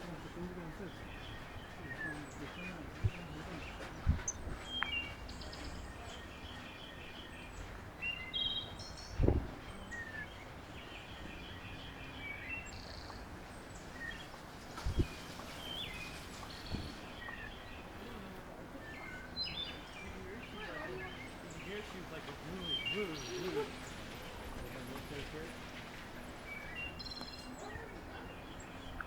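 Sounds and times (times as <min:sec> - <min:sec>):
small songbirds chirping: 0:00.0 - 0:29.0
outdoor hiss: 0:08.0 - 0:27.4.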